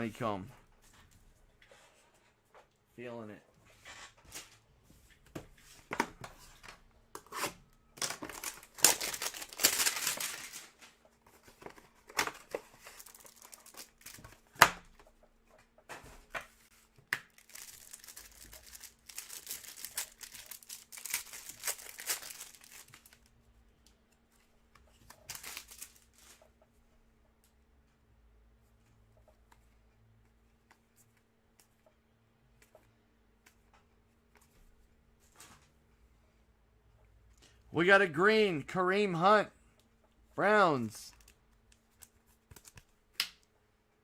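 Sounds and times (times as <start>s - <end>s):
packaging torn and crinkled: 8.0s - 10.8s, 12.8s - 14.2s, 17.3s - 23.3s, 25.3s - 26.1s.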